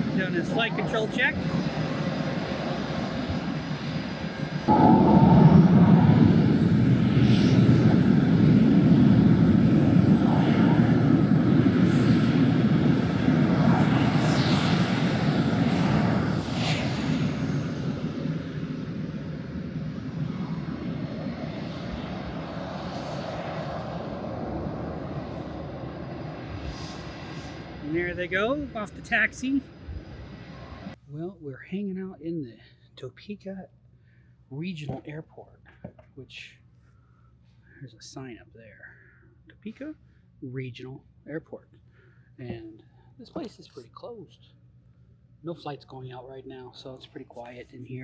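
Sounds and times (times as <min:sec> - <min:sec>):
jet engines rushing: 0:00.0 - 0:31.0.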